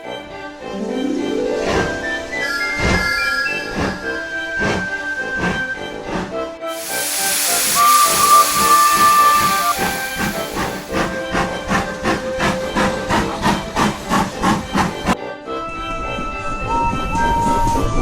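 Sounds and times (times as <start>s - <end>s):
music: 0.0s - 18.0s
steam hiss: 0.5s - 15.2s
steam locomotive whistle: 1.6s - 14.9s
locomotive chuffing: 1.6s - 15.2s.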